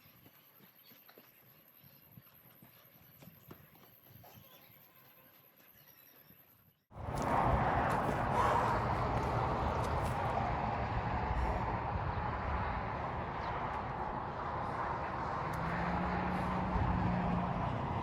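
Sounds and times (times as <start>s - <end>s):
storm wind blowing: 7.0s - 18.0s.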